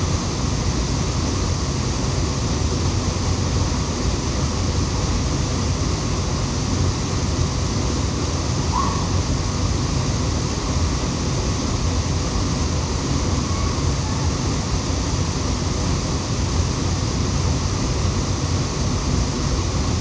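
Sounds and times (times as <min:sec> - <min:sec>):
waterfall roaring: 0:00.1 - 0:20.0
faint bird chirp: 0:08.7 - 0:09.1.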